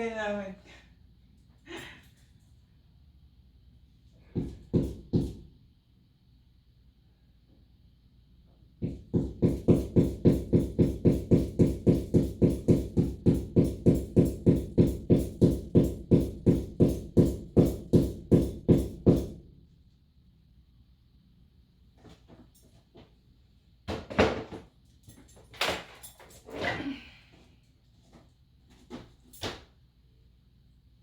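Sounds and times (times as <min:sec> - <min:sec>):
rapid knocking on a wall: 0:04.3 - 0:05.5, 0:08.8 - 0:19.4.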